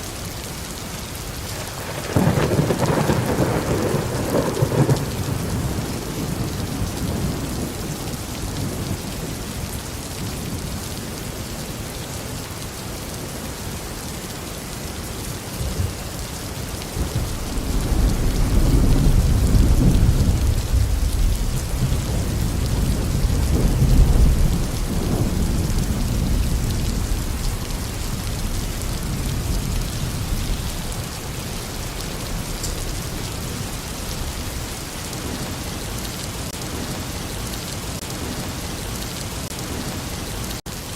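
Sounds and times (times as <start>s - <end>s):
heavy rain: 0.0s - 40.9s
rolling thunder rumble: 1.5s - 9.5s, 15.6s - 35.7s.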